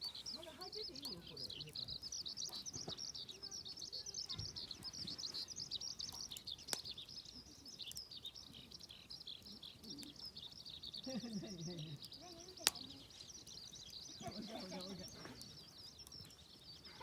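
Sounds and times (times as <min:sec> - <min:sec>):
birds chirping and twittering: 0:00.0 - 0:17.0.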